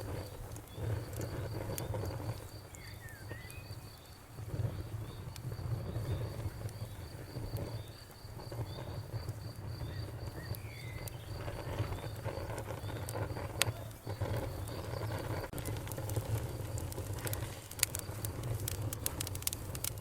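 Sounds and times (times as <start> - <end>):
insect chirping: 0.0 - 15.6
wood fire crackling: 0.0 - 20.0.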